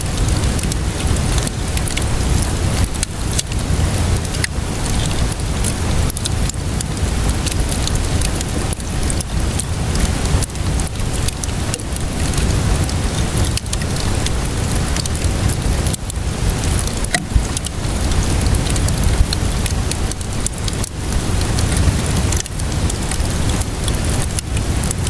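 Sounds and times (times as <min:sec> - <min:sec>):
steady rainfall: 0:00.0 - 0:25.0
wood fire crackling: 0:00.0 - 0:25.0
low rumble: 0:16.9 - 0:19.4.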